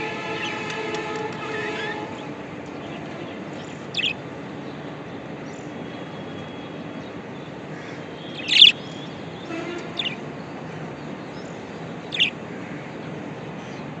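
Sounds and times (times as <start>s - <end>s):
budgerigars chirping: 3.9s - 4.2s, 8.3s - 8.8s, 10.0s - 10.2s, 12.0s - 12.4s.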